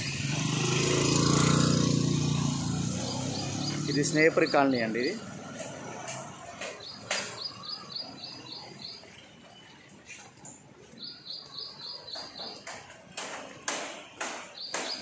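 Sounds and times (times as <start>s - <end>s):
bird chirping rapidly: 2.9s - 5.2s, 11.0s - 12.7s, 14.5s - 15.0s.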